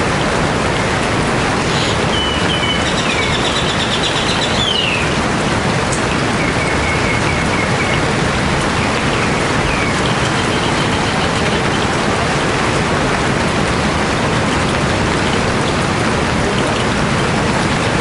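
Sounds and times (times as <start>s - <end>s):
heavy rainfall: 0.0s - 18.0s
birds calling: 1.6s - 5.2s, 5.9s - 12.0s.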